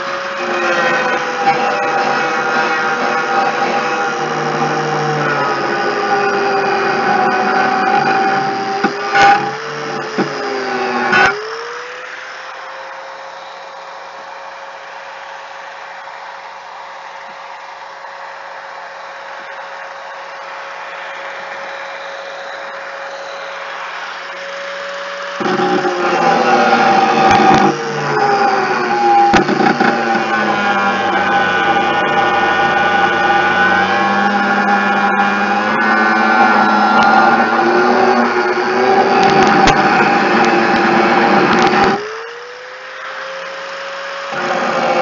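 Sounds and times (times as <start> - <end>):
power tool motor running: 0.0 - 45.0
machine whooshing hiss and hum: 19.2 - 42.2.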